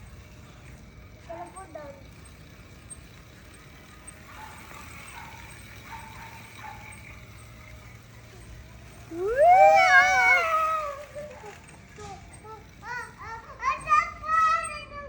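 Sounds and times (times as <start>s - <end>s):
loud wavering vocal cry: 9.0s - 11.6s.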